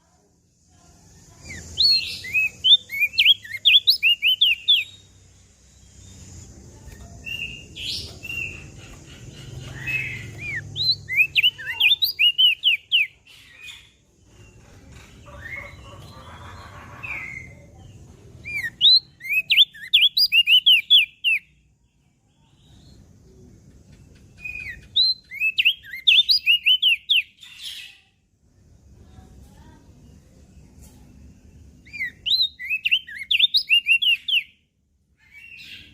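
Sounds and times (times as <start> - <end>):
bird chirping rapidly: 1.3 - 6.4, 7.2 - 17.6, 18.4 - 21.6, 24.0 - 27.9, 31.7 - 34.6.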